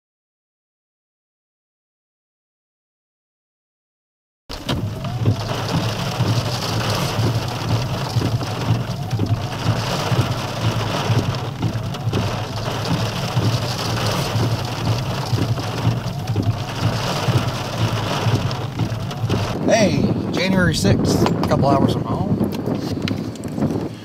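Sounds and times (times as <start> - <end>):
vehicle low hum: 4.5 - 20.2
rain on vehicle windshield and roof: 4.5 - 21.6.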